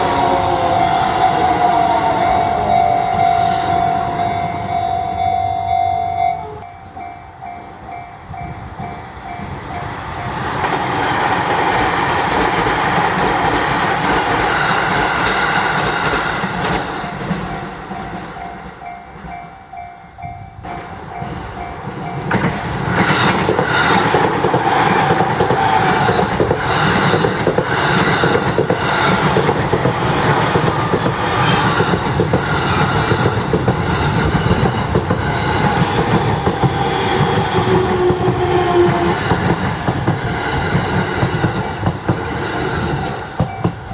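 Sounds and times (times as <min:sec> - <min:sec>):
electric train rumble: 0:00.0 - 0:43.9
train wheels clacking over rail joints: 0:08.8 - 0:18.8, 0:20.7 - 0:43.9.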